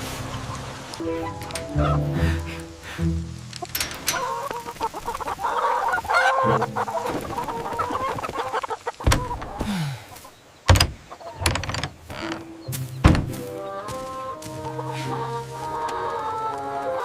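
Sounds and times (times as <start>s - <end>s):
chickens clucking and squawking: 0.0s - 17.0s
sharp thuds: 9.0s - 9.8s, 13.0s - 13.4s.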